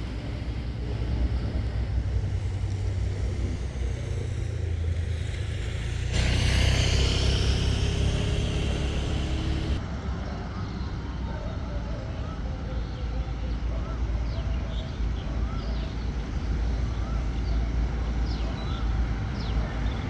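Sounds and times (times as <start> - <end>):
diesel train engine rumble: 0.0 - 20.0
hissing with thin squealing: 3.7 - 9.8.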